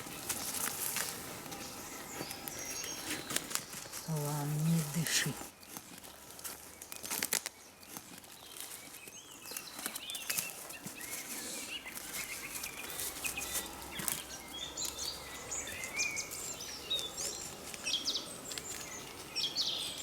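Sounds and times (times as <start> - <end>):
songbirds chirping and singing: 0.0 - 20.0
sharp clicks and rustles: 5.7 - 11.1.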